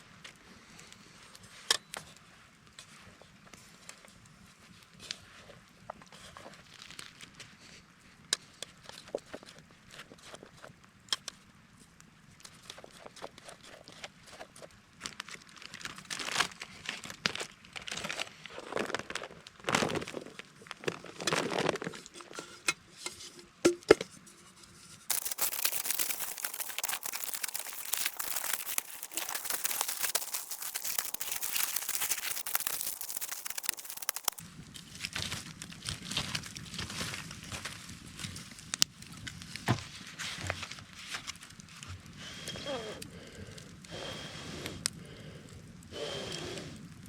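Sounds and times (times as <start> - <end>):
aluminium foil tearing and crinkling: 6.6 - 7.3, 15.0 - 22.2, 25.1 - 38.8
steady crackling hiss: 25.1 - 34.4.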